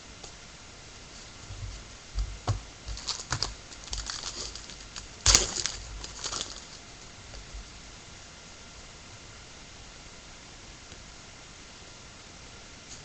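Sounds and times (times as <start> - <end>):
card packs clicking and crinkling: 2.9 - 6.8.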